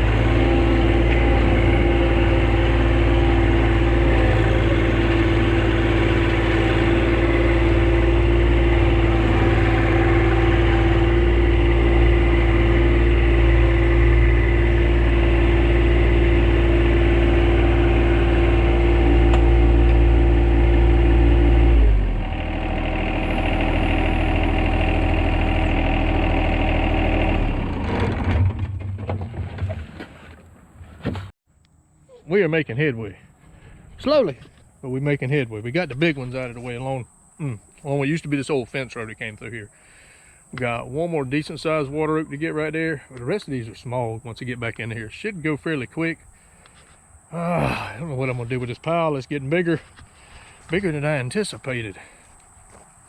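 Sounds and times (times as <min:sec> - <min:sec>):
tractor engine running: 0:00.0 - 0:31.3.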